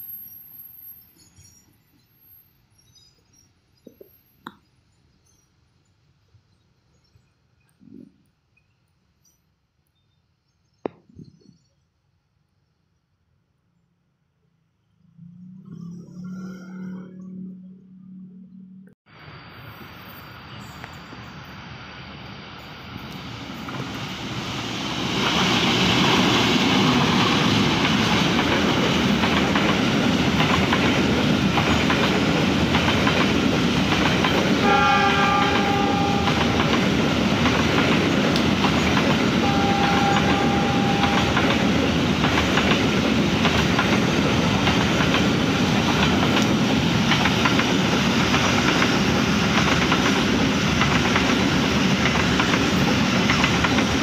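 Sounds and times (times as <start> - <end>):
train wheels clattering over rails: 23.6 - 54.0
train horn blasts: 34.6 - 36.7, 39.4 - 41.6.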